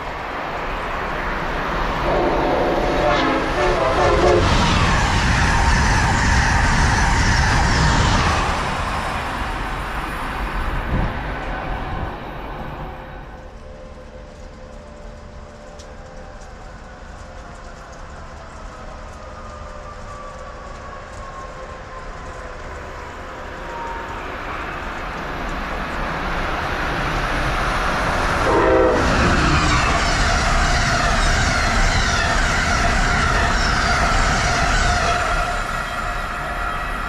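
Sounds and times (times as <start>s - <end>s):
electric train passing at speed: 0.0s - 37.0s
train cars hissing rattle: 26.0s - 37.0s.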